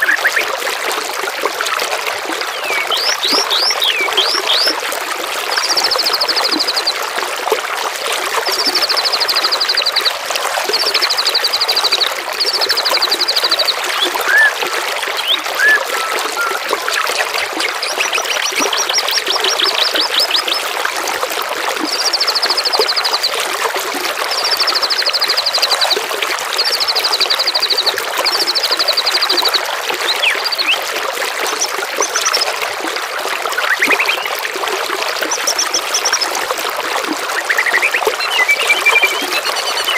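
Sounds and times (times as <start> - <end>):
songbird trilling: 0.0 - 0.5, 2.6 - 4.7, 12.7 - 14.6, 15.2 - 16.6, 17.6 - 20.6, 30.1 - 30.8, 33.6 - 34.3, 37.3 - 39.9
babbling running water: 0.0 - 39.9.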